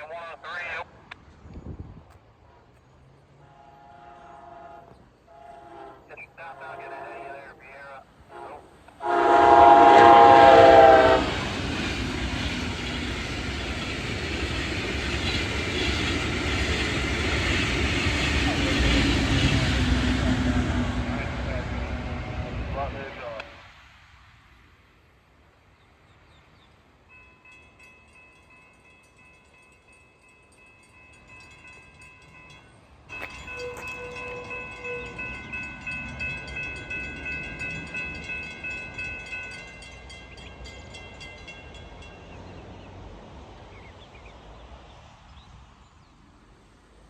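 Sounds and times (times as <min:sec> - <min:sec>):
crossing warning bell ringing: 0:27.1 - 0:42.7.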